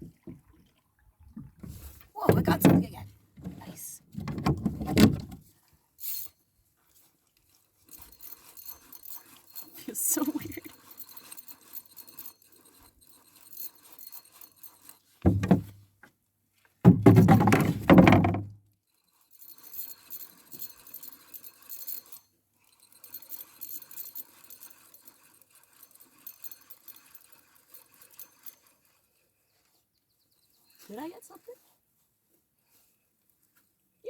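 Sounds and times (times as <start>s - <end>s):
fishing reel ticking: 6.0s - 6.4s, 7.0s - 15.2s, 18.8s - 31.5s
rod handling bumps: 15.3s - 15.8s, 16.9s - 18.5s.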